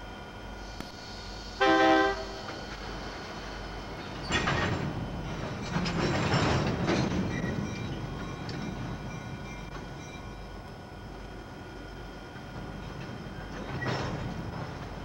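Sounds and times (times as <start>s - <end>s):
train horn blast: 1.6s - 2.5s
freight cars rumbling and clattering: 2.4s - 15.0s.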